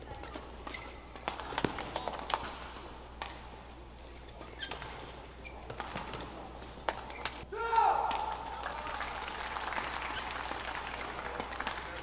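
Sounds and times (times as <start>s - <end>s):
shoes squeaking on court: 0.0s - 2.4s, 3.2s - 7.4s
racket striking shuttlecock: 0.7s - 3.4s.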